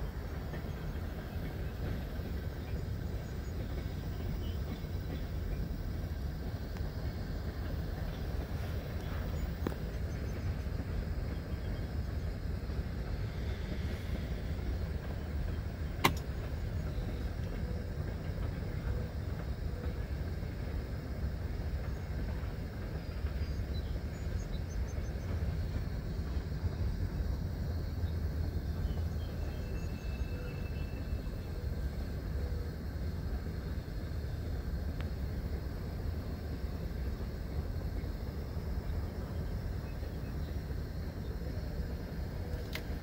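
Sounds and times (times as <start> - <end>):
distant freight train rumble: 0.0 - 43.0
sharp click: 16.0 - 16.3.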